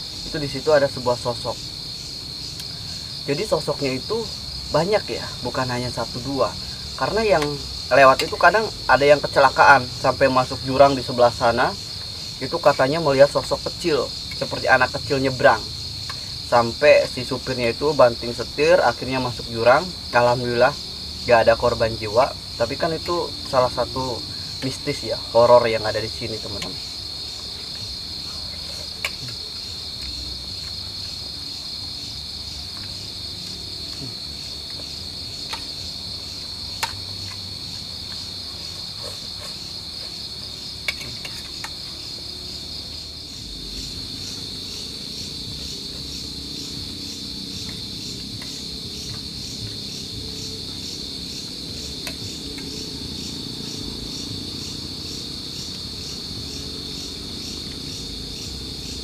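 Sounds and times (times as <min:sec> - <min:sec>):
crickets chirring: 0:00.0 - 0:59.0.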